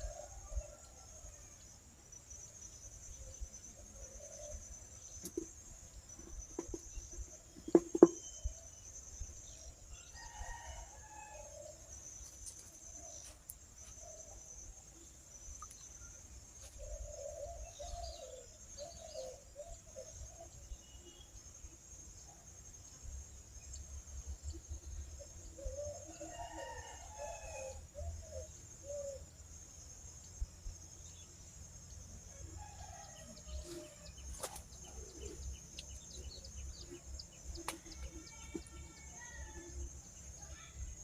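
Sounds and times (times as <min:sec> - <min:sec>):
insects chirring: 0:00.0 - 0:41.0
sharp knocks: 0:07.6 - 0:08.2
rooster crowing: 0:26.1 - 0:27.8.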